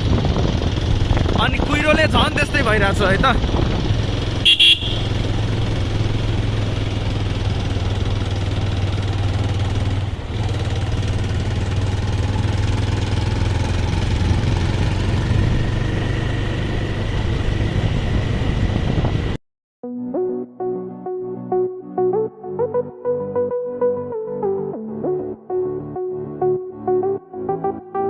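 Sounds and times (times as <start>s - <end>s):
vehicle engine humming: 0.0s - 19.4s
wind and road noise: 0.0s - 19.4s.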